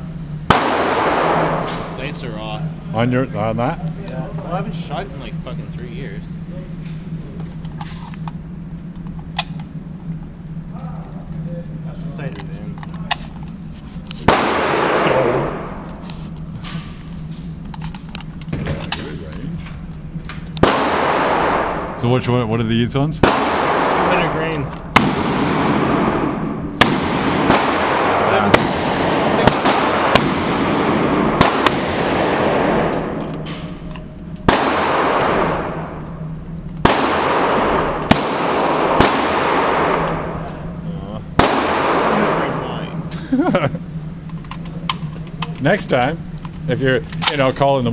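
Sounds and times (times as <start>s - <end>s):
handgun shot with echo: 0.5s - 2.2s, 14.3s - 16.0s, 20.6s - 22.0s, 23.2s - 36.2s, 36.8s - 40.6s, 41.4s - 42.7s
loud rushing noise: 23.2s - 36.0s.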